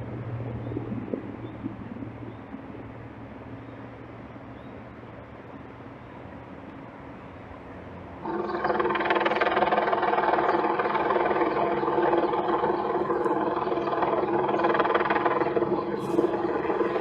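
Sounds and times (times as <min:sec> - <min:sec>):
low steady hum: 0:00.0 - 0:17.0
vehicle engine droning: 0:07.9 - 0:17.0.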